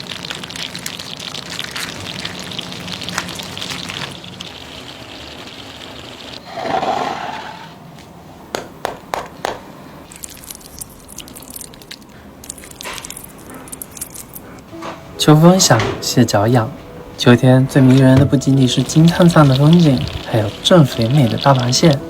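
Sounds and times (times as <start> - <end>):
water running and splashing: 0.0 - 6.4, 10.1 - 14.4, 17.9 - 22.0.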